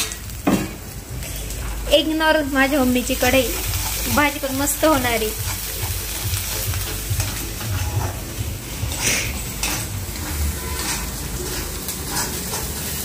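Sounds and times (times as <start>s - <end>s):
spice paste sizzling in oil: 0.0s - 13.0s
spoon scraping and clicking pan: 8.9s - 13.0s.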